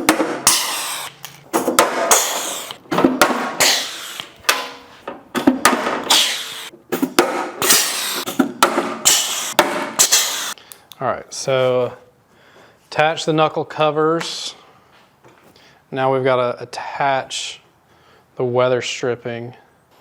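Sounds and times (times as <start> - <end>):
rivet gun bursts: 0.1 - 2.8, 3.5 - 4.8, 6.0 - 6.7, 7.6 - 8.4, 9.0 - 10.6.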